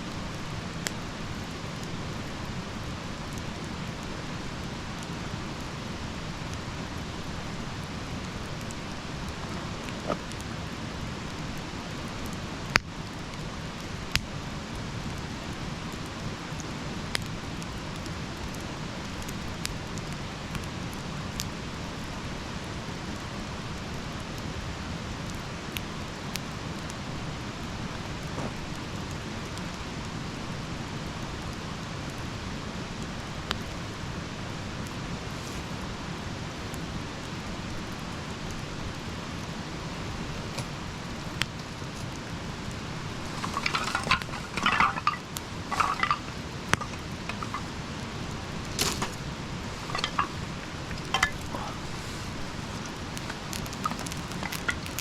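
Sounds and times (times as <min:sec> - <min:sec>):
campfire crackling: 0:00.0 - 0:55.0
clinks and rustles of handling: 0:43.0 - 0:55.0.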